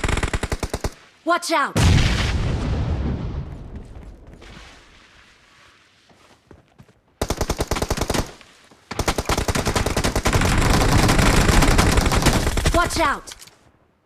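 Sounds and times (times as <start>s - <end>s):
video game automatic gunfire: 0.0s - 1.0s, 7.2s - 13.0s.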